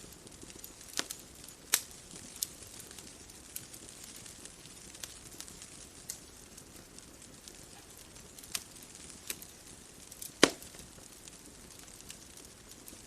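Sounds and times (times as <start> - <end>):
bonfire crackling: 0.0 - 13.0
faint steady hiss: 0.0 - 13.0
sharp pops: 10.4 - 10.8.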